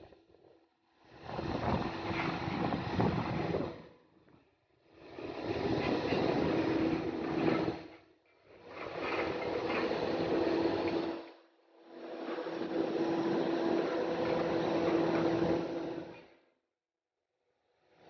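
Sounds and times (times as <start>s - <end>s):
heavy demolition machinery running: 5.0s - 11.1s.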